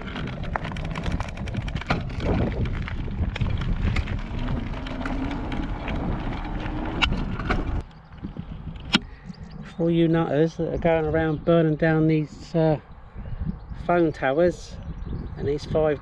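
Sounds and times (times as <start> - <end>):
knocks and rattles: 0.0 - 9.7
wind buffeting microphone: 0.0 - 16.0.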